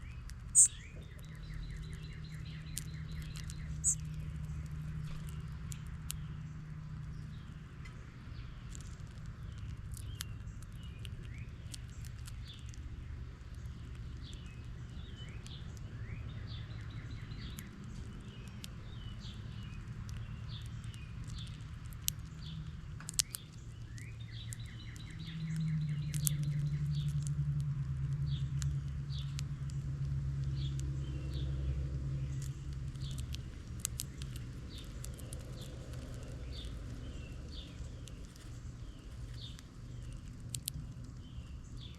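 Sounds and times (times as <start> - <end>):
songbirds chirping: 0.0 - 41.9
steady low rumble: 0.0 - 41.9
bird chattering trills: 0.6 - 4.1
sharp clicks: 19.6 - 29.8, 32.3 - 41.9.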